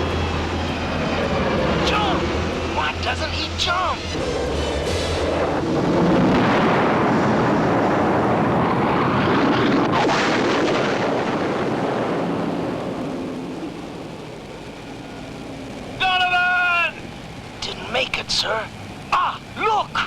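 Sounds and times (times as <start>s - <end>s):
cartoon explosion roar: 4.1s - 13.1s.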